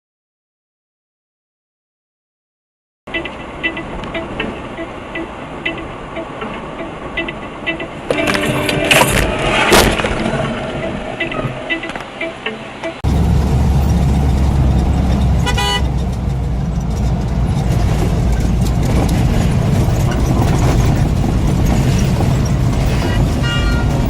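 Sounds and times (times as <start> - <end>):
vehicle horn honk: 3.1 - 5.9, 7.2 - 9.4, 15.4 - 16.0, 23.4 - 24.0
vehicle driving rumble: 3.1 - 24.0.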